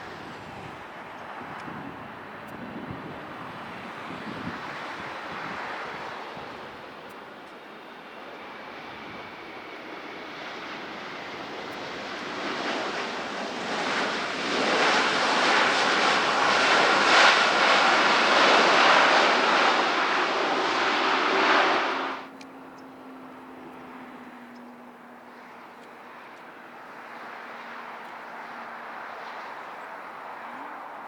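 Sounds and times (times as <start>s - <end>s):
jet airliner engines passing: 0.0s - 31.0s.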